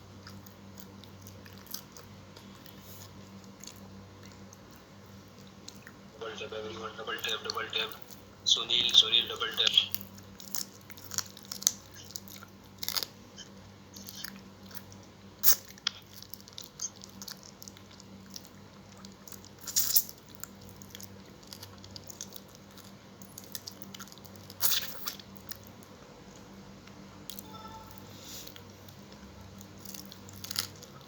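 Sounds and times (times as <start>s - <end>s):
chewing and biting food: 0.0s - 6.1s, 9.9s - 27.4s, 28.5s - 31.0s
crisp crunches: 9.9s - 13.2s, 29.6s - 31.0s.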